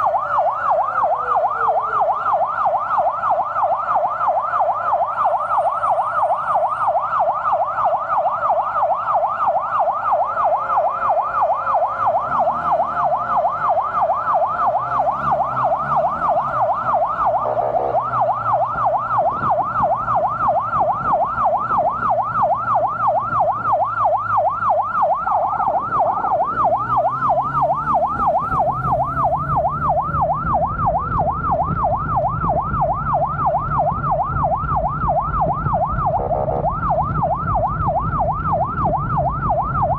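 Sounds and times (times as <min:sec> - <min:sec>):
emergency siren yelping: 0:00.0 - 0:39.9
vehicle engine humming: 0:00.0 - 0:39.9.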